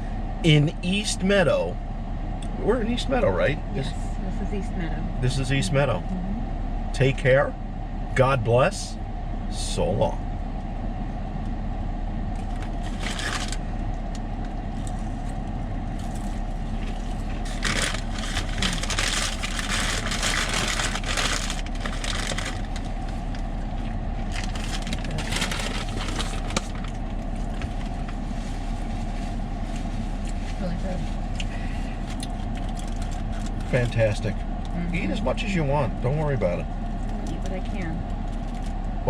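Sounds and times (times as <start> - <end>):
car cabin hum: 0.0 - 39.0
crunching fried chicken: 12.4 - 28.1, 31.3 - 34.0
packaging rustling: 12.7 - 13.6, 16.9 - 23.4, 24.3 - 28.0.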